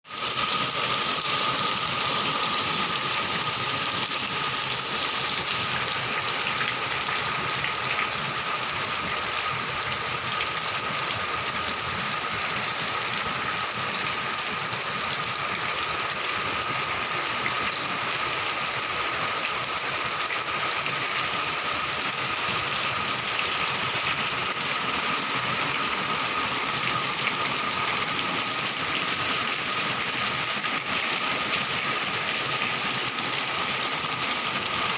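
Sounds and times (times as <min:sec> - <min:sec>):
heavy rain pouring: 0:00.1 - 0:34.9.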